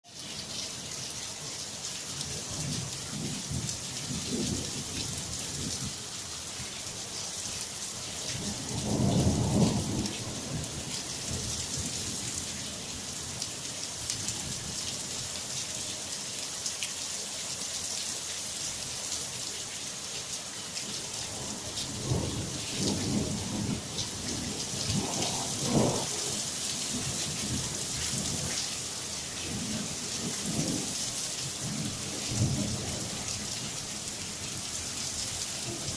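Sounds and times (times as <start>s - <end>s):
heavy rain: 0.0s - 35.9s
thunder rumbling: 21.5s - 26.3s.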